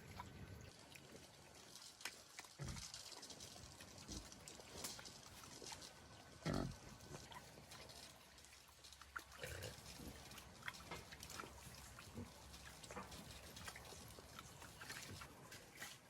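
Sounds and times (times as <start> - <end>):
pigs grunting: 2.6 - 3.0, 6.4 - 7.5, 9.3 - 10.4.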